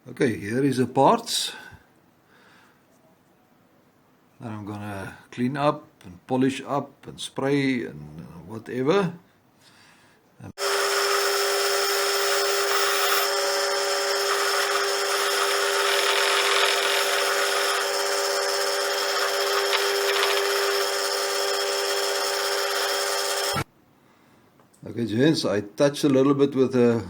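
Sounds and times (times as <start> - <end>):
power tool motor whine: 10.6 - 23.7.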